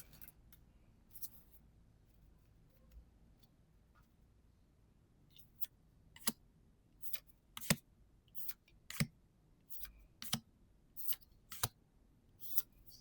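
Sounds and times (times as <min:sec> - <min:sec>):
cards sliding and snapping: 0:09.8 - 0:10.4, 0:11.0 - 0:11.8.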